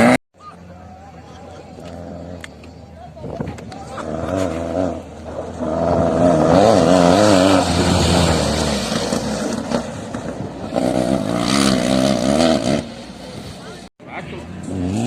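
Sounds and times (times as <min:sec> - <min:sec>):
off-road vehicle engine under load: 0:00.0 - 0:15.0.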